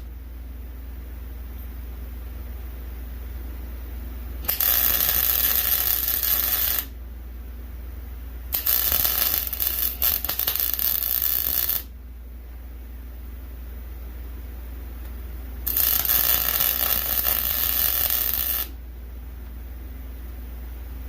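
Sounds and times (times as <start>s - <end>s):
steady low hum: 0.0s - 21.0s
welding arc crackling: 4.4s - 7.0s, 8.5s - 11.9s, 15.6s - 18.8s.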